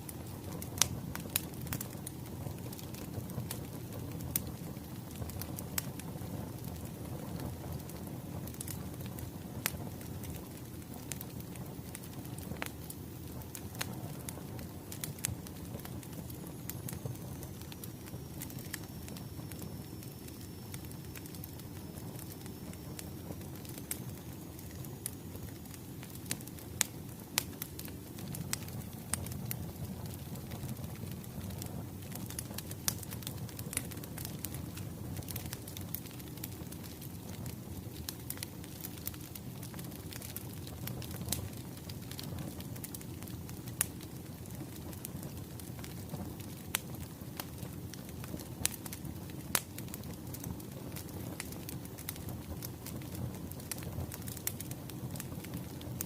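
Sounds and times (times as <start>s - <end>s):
low rumble of burning logs: 0.0s - 56.0s
wood fire popping and snapping: 0.0s - 56.0s.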